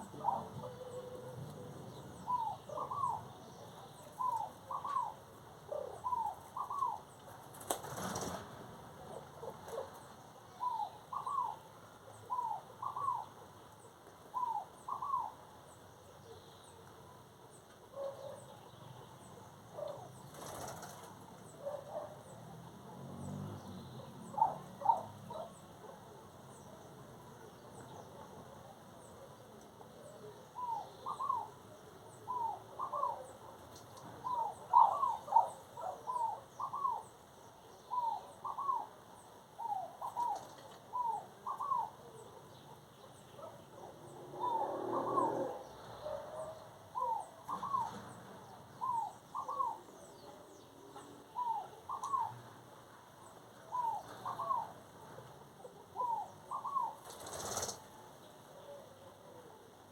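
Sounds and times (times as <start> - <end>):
noisy rustle: 7.2 - 9.0, 20.2 - 21.5, 57.0 - 58.1.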